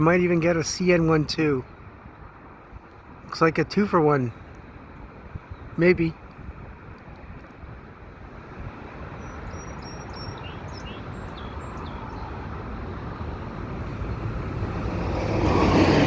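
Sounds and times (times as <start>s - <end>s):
train rumbling: 13.0s - 16.0s.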